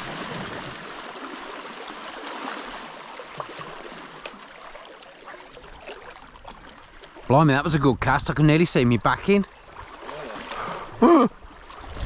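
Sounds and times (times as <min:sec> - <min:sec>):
sea water washing over rocks: 0:00.0 - 0:07.3.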